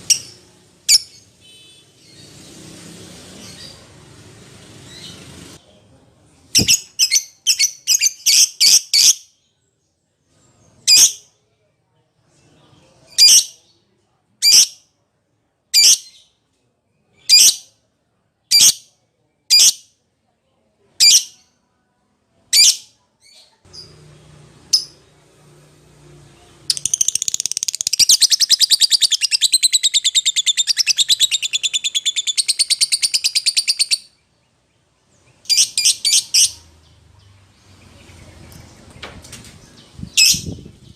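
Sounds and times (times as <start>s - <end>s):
bird shrill chirping: 26.7s - 34.2s.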